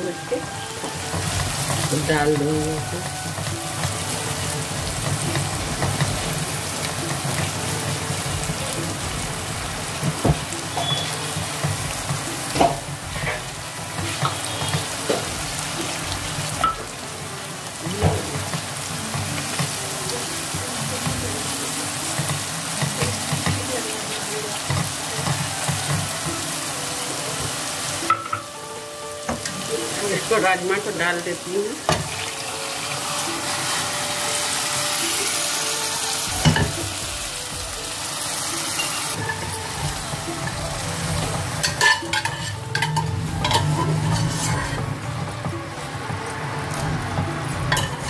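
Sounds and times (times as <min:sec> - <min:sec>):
paste sizzling in oil: 0:00.0 - 0:48.0
spatula stirring: 0:39.2 - 0:45.4.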